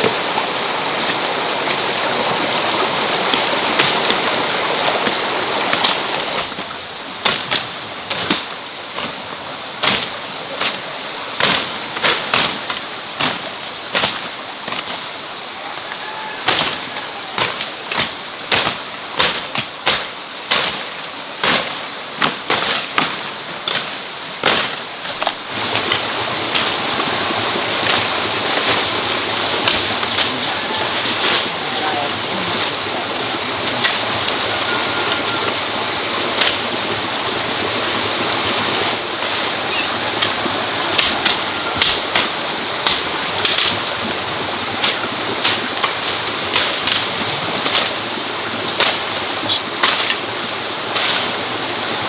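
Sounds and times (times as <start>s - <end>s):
steady rushing noise: 0.0s - 15.6s.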